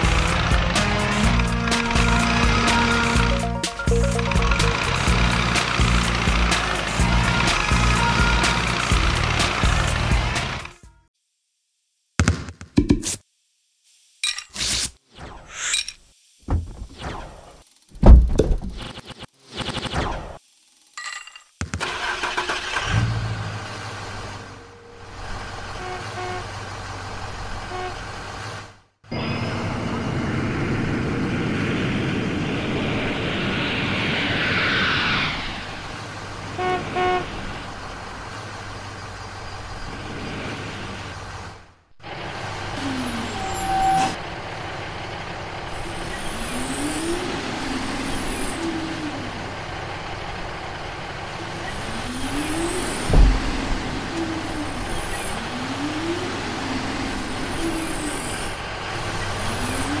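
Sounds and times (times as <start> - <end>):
excavator whine: 0.0 - 10.8, 29.1 - 41.3, 42.0 - 60.0
cartoon truck engine: 0.0 - 11.0, 21.6 - 60.0
horn toots: 0.7 - 5.2, 6.9 - 9.3, 25.7 - 26.6, 27.6 - 28.1, 36.4 - 37.4
heavy thud: 16.5 - 17.0, 18.0 - 18.8, 53.1 - 53.9
falling whoosh: 31.4 - 36.3.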